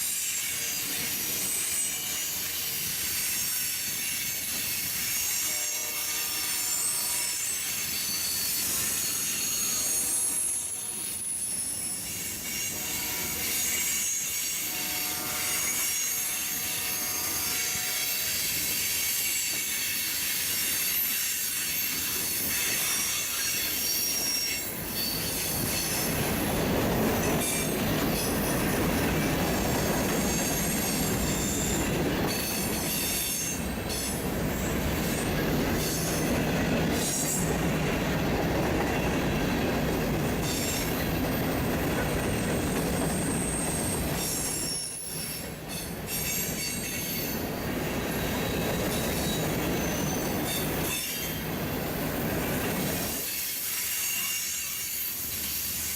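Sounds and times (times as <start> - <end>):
train wheels squealing on rail: 0.0 - 55.9
train cars rumbling past: 21.5 - 53.8.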